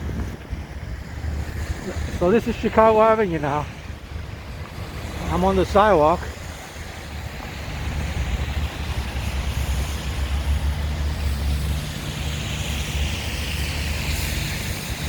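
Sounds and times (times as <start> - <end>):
tyres hissing on road: 0.0 - 15.0
vehicle engines running low: 0.0 - 15.0
vehicle passing: 1.0 - 15.0.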